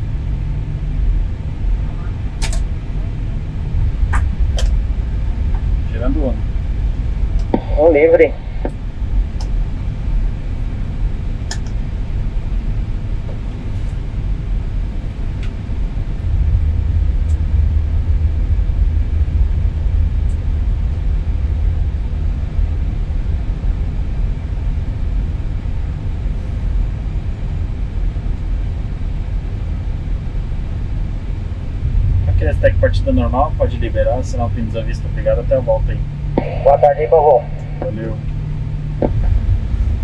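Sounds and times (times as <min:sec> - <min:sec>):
jet engines spooling up: 0:28.8 - 0:40.0.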